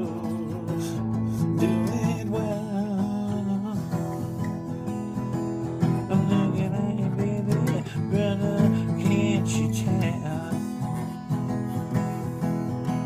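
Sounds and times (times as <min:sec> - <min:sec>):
person singing: 0:00.0 - 0:04.6, 0:06.0 - 0:11.1
acoustic guitar strumming: 0:00.0 - 0:13.0.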